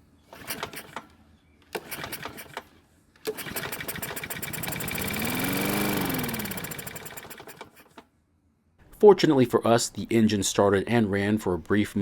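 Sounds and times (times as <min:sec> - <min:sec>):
recoil starter pulls: 0:00.3 - 0:01.1, 0:01.7 - 0:08.0
mower engine running: 0:03.3 - 0:07.9.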